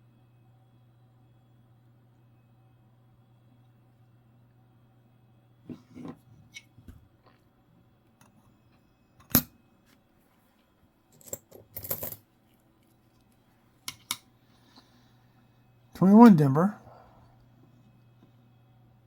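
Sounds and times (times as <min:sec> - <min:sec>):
faint low hum: 0:00.0 - 0:19.0
coins clinking: 0:11.2 - 0:12.2
coins scraping clatter: 0:11.2 - 0:12.2.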